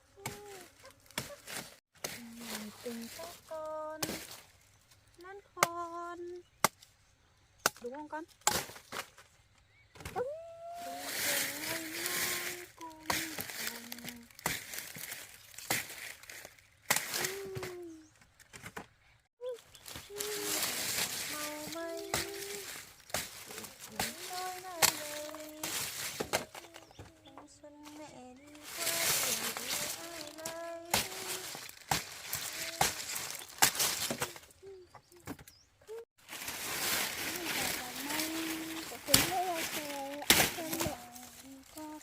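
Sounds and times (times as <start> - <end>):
person humming: 0.0 - 1.4, 10.1 - 14.4, 17.2 - 18.0, 19.4 - 36.0, 37.2 - 42.0
person speaking: 2.2 - 4.1, 10.2 - 14.4, 19.4 - 35.3, 36.8 - 42.0
crackling and rustling: 10.8 - 42.0.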